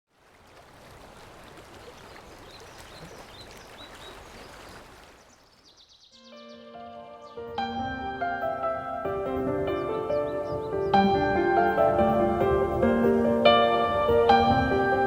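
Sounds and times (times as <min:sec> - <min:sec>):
high bird chirps: 0:05.3 - 0:07.7
soft music with held notes: 0:06.2 - 0:15.0.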